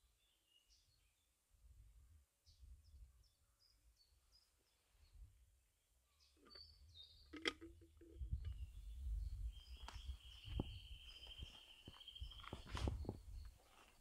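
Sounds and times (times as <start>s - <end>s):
faint bird chirps: 6.0s - 14.0s.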